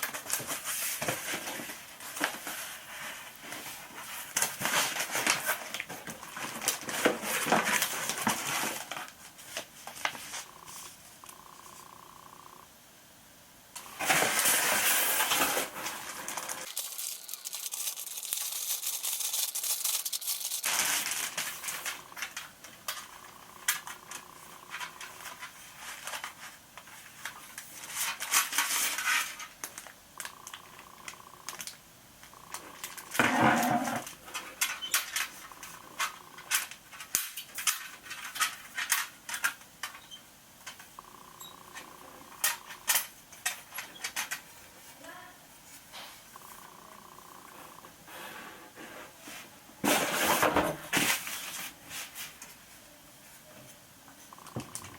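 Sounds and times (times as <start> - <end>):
hard objects clinking and clattering: 13.8 - 26.4.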